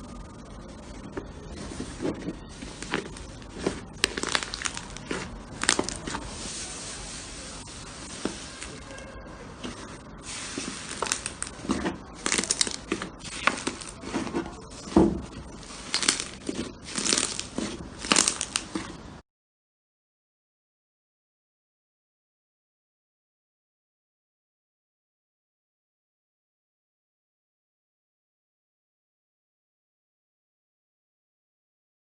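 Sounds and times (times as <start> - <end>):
slime squelching and popping: 2.0 - 6.3, 9.7 - 19.0.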